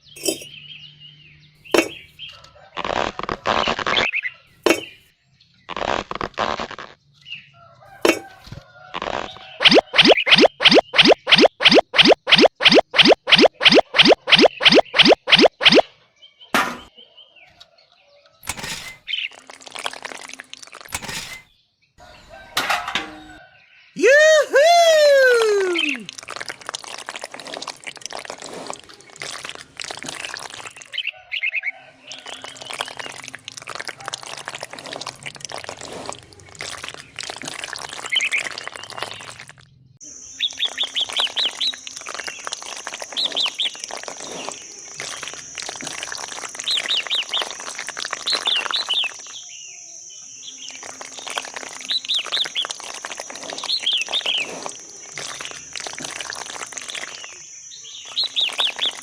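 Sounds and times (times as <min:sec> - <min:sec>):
small birds chirping: 0:09.3 - 0:16.4, 0:37.9 - 0:59.0.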